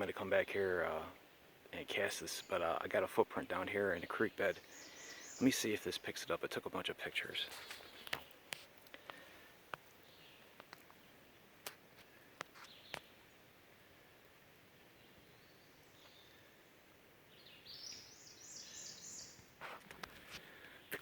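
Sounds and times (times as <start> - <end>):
faint sharp clicks: 7.6 - 10.0, 10.6 - 11.0, 11.6 - 13.1, 19.4 - 21.0.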